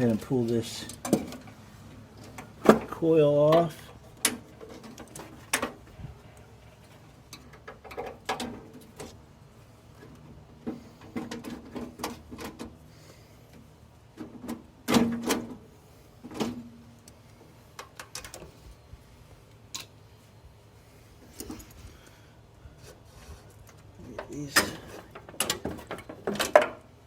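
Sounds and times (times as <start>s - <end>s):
hand tools and metal parts clattering: 0.0s - 9.2s, 9.9s - 12.8s, 21.2s - 21.9s, 22.8s - 27.0s.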